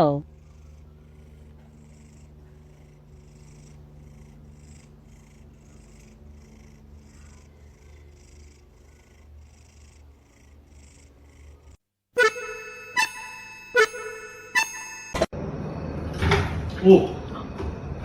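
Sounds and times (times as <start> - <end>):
cat purring: 0.0 - 11.8.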